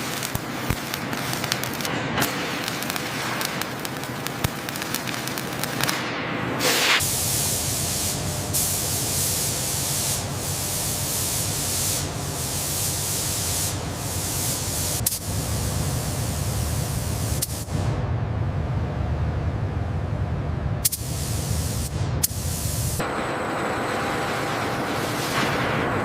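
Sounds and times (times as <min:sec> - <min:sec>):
blasting nozzle hissing: 0:06.6 - 0:17.8, 0:20.9 - 0:23.3, 0:24.2 - 0:26.0
low rumble: 0:17.8 - 0:20.9.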